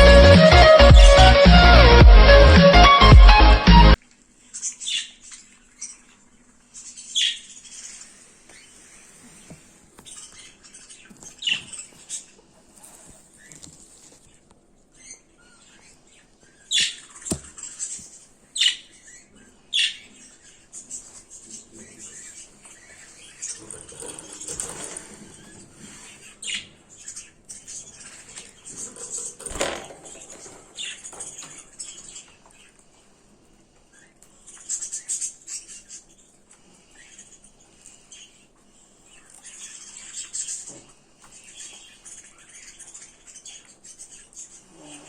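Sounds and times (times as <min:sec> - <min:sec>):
small songbirds chirping: 0:04.4 - 0:45.0
harsh high-pitched bird calls: 0:14.9 - 0:32.8.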